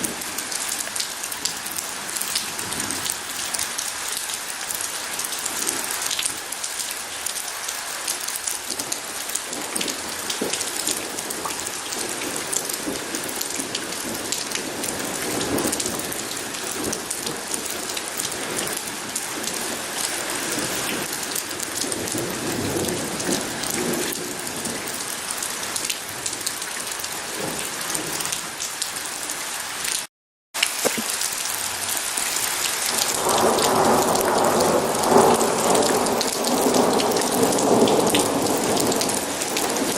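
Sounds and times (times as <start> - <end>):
heavy rain falling: 0.0 - 39.9
thunder rumbling: 32.9 - 39.9.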